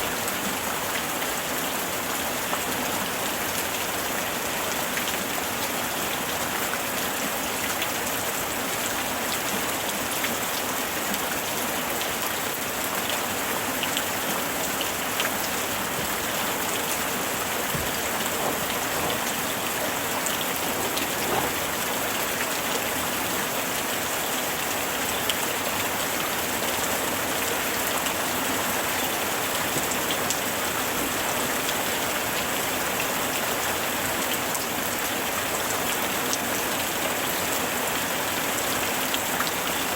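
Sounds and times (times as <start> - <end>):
steady rain falling: 0.0 - 39.9
raindrop ticks: 17.6 - 21.7.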